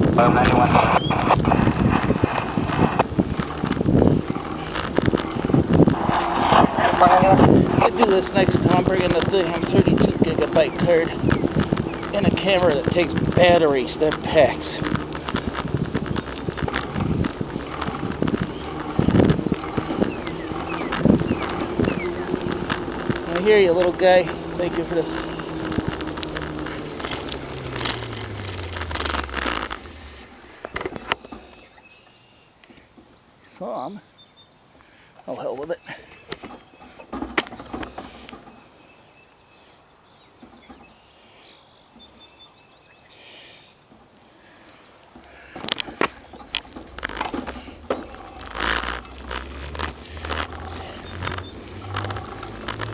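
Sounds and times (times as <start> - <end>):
bicycle rattling and knocking: 0.0 - 31.7, 36.3 - 38.6, 45.1 - 52.9
rustling: 0.0 - 31.7, 44.5 - 52.9
small birds chirping: 0.0 - 52.9.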